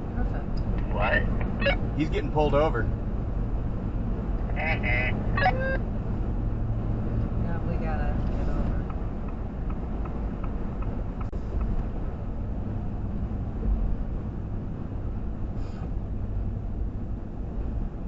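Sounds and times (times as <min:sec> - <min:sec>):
car road and engine noise: 0:00.0 - 0:18.0
turn signal ticking: 0:00.4 - 0:02.6, 0:07.1 - 0:12.0.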